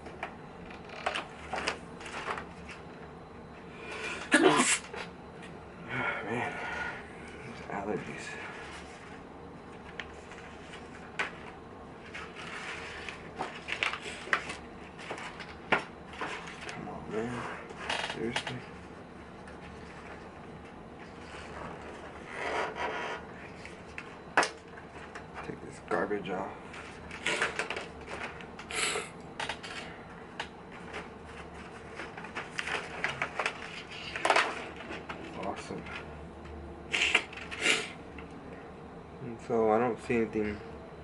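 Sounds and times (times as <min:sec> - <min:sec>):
plastic sheets rustling: 0:08.4 - 0:18.7, 0:30.7 - 0:36.0.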